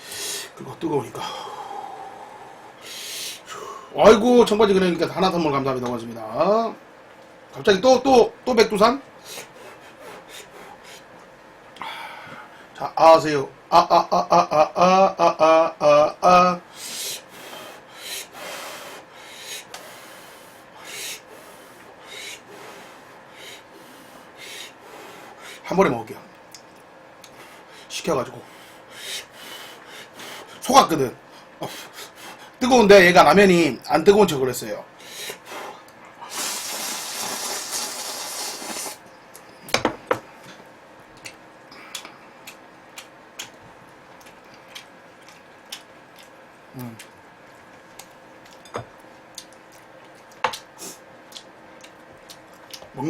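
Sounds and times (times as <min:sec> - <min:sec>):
breathy blow over hot food: 0:01.2 - 0:04.0, 0:11.8 - 0:12.7, 0:16.7 - 0:25.7, 0:35.0 - 0:39.0
person eating noodles: 0:35.3 - 0:39.0
soft chewing clicks: 0:40.5 - 0:53.0.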